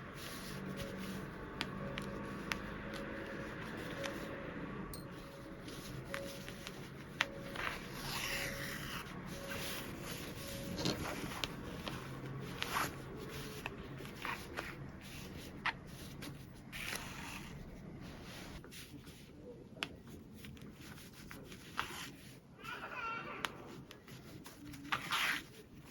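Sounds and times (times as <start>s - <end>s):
fabric rustling: 5.1s - 19.3s.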